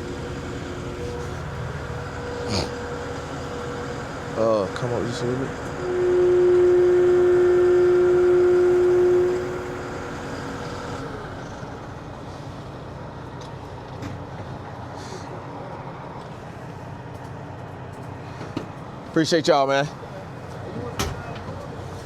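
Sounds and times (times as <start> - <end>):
loud horn-like tone: 0.0 - 11.2
engine running: 0.0 - 19.1.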